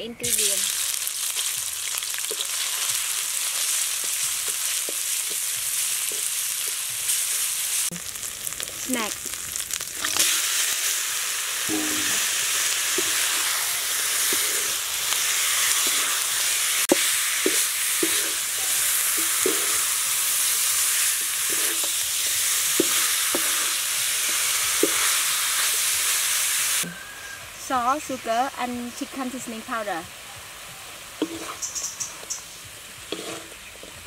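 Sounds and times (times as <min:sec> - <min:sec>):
meat sizzling in a wok: 0:00.2 - 0:34.0
spatula scraping and knocking pan: 0:16.8 - 0:20.0, 0:31.2 - 0:31.6, 0:33.1 - 0:34.0.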